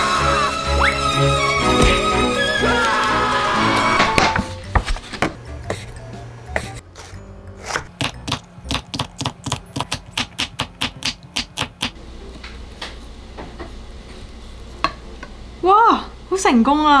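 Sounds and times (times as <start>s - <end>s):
background music with low tones: 0.0s - 11.4s
knife chopping on cutting board: 7.6s - 12.0s.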